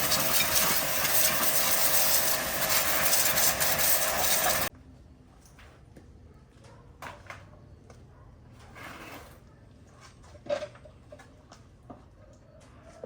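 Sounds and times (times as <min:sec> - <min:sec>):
loud machine running: 0:00.0 - 0:04.7.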